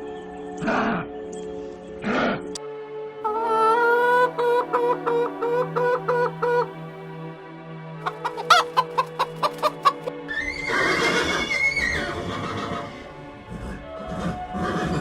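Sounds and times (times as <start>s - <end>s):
background music: 0.0s - 15.0s
harsh chicken call: 3.2s - 6.8s, 8.0s - 12.8s
chickens clucking: 3.2s - 6.9s, 8.0s - 10.1s.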